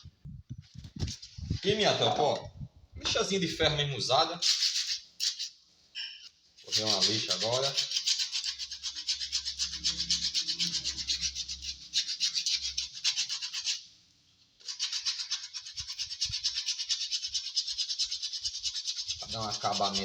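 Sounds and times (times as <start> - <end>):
sandpaper scraping on wood: 4.4 - 5.6, 6.6 - 13.9, 14.6 - 20.0.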